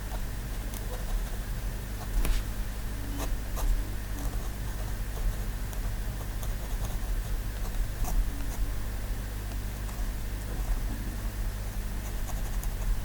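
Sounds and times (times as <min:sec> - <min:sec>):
steady low hum: 0:00.0 - 0:13.0
pen scratching on paper: 0:03.1 - 0:08.8, 0:12.0 - 0:13.0.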